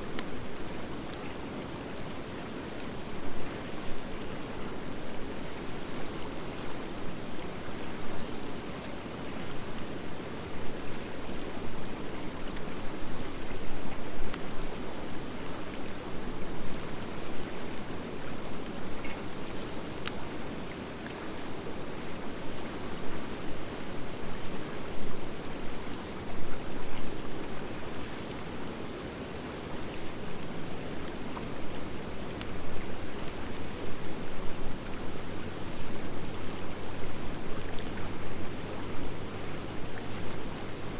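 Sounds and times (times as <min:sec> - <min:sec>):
fire crackles and pops: 0:11.8 - 0:22.3, 0:23.7 - 0:40.9.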